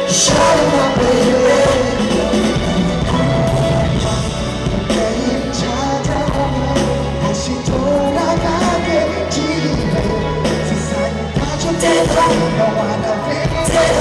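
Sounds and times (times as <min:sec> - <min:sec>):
bass notes: 0:00.0 - 0:14.0
live band playing pop: 0:00.0 - 0:14.0
person singing: 0:00.0 - 0:14.0
drum beat: 0:00.1 - 0:06.8.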